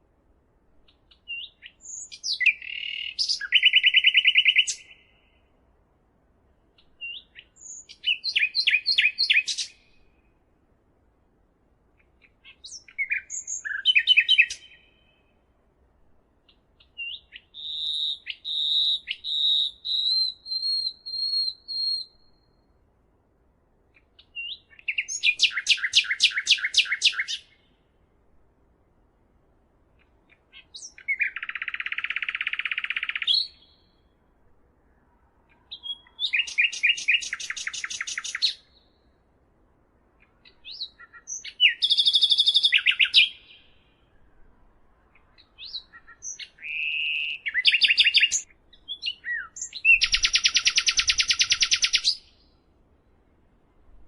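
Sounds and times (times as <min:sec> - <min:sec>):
songbird singing: 0:00.0 - 0:10.9, 0:11.8 - 0:54.0.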